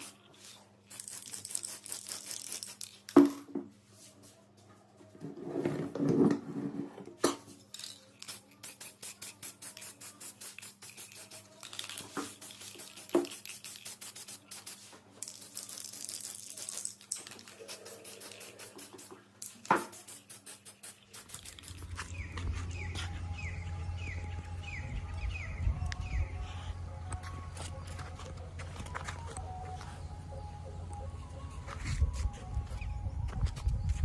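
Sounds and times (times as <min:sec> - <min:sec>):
spray can ball rattling: 0:00.0 - 0:03.5, 0:07.7 - 0:23.5
spray hiss: 0:17.5 - 0:22.2.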